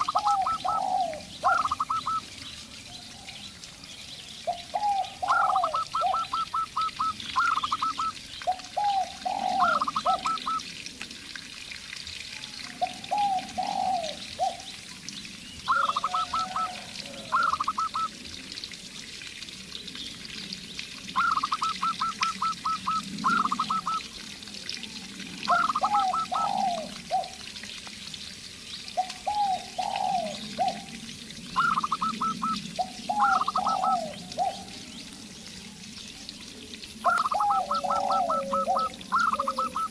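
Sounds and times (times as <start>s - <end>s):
low falling dove coos: 0.0s - 2.2s, 4.4s - 10.9s, 12.6s - 14.7s, 15.7s - 18.4s, 21.1s - 27.6s, 29.0s - 35.2s, 37.0s - 39.9s.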